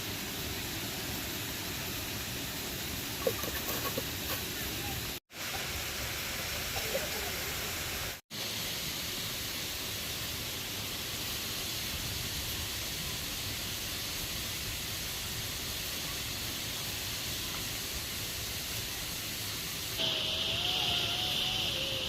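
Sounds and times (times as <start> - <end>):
waterfall rushing: 20.0 - 22.0.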